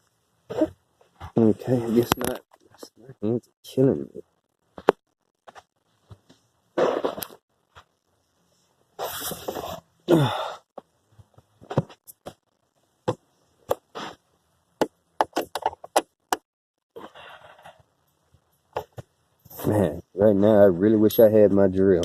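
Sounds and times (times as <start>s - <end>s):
man groaning: 10.1s - 10.6s
man breathing heavily: 10.1s - 10.8s.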